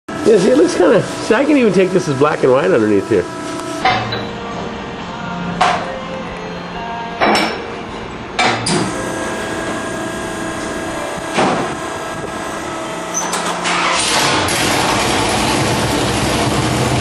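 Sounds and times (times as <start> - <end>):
loud engine running: 8.8 - 17.0.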